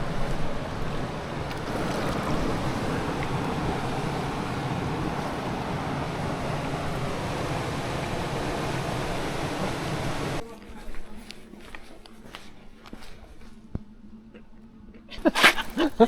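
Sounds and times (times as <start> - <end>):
low engine drone: 0.0 - 10.4
wind and water rushing: 0.0 - 10.4.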